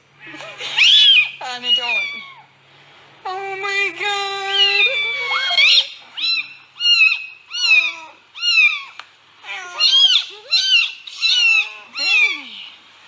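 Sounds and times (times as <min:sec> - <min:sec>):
cat meowing: 0:04.6 - 0:12.8.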